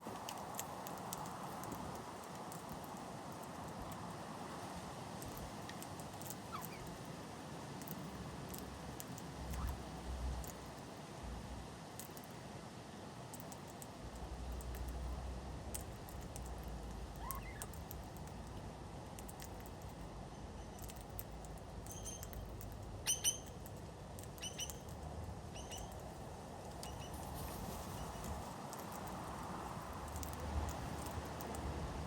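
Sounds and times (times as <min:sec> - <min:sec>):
high bird chirps: 0:06.5 - 0:06.9, 0:23.0 - 0:23.6, 0:24.4 - 0:24.9, 0:25.6 - 0:26.0
faint light clicks: 0:13.3 - 0:15.1.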